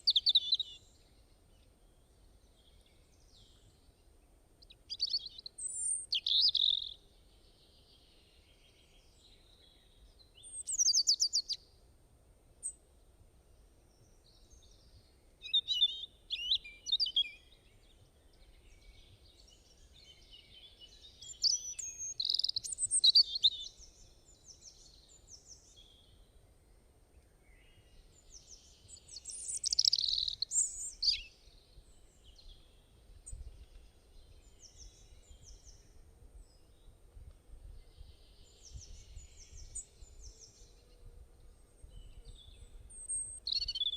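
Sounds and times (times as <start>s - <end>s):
birds chirping: 27.8s - 35.9s.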